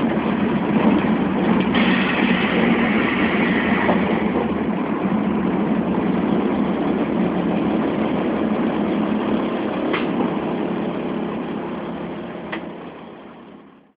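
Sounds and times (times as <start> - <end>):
bus engine running: 0.0 - 13.9.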